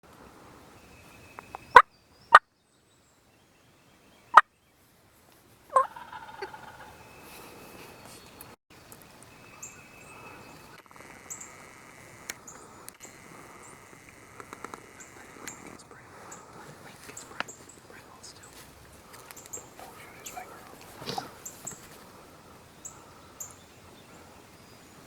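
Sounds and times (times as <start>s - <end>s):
turkey gobbling: 5.7s - 7.1s.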